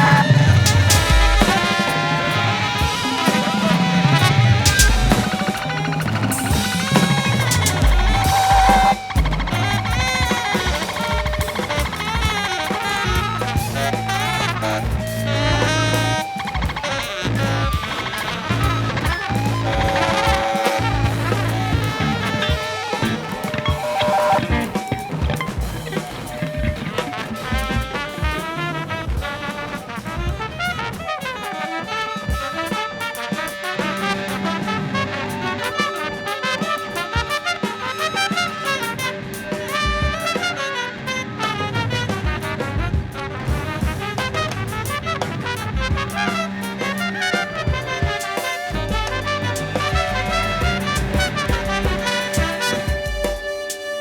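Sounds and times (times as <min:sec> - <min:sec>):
drum kit: 0:00.0 - 0:54.0
electric piano: 0:00.0 - 0:54.0
guitar: 0:00.0 - 0:54.0
saxophone: 0:00.0 - 0:54.0
trumpet: 0:00.0 - 0:54.0
bass: 0:06.0 - 0:10.3, 0:13.0 - 0:16.3, 0:17.1 - 0:17.9, 0:18.5 - 0:23.4, 0:48.7 - 0:53.4.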